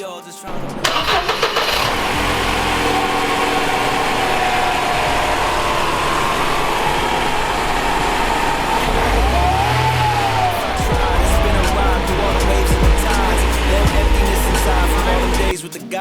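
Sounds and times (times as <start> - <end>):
car engine idling: 0.5 - 15.6.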